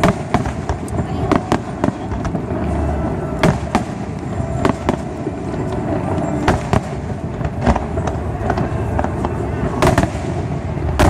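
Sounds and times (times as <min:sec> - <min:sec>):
fireworks bursting with sharp bangs: 0:00.0 - 0:11.0
steady rumble: 0:00.0 - 0:11.0.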